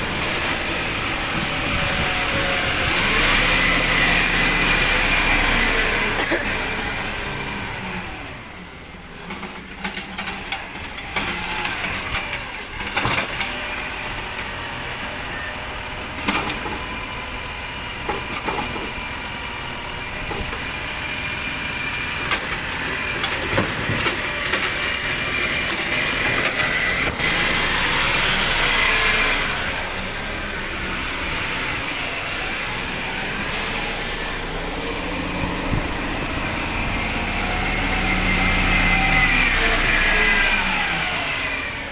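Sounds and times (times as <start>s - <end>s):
rubbish truck engine running: 0.0s - 41.9s
clanks and knocks: 22.3s - 27.4s.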